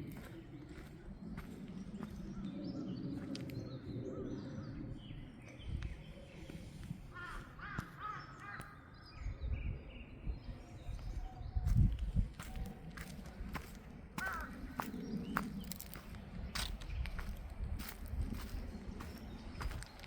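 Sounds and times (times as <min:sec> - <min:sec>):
footsteps on forest path: 0:00.0 - 0:03.7, 0:05.8 - 0:08.6, 0:11.0 - 0:20.0
small birds chirping: 0:00.0 - 0:20.0
crow cawing: 0:07.1 - 0:08.9, 0:14.2 - 0:14.9.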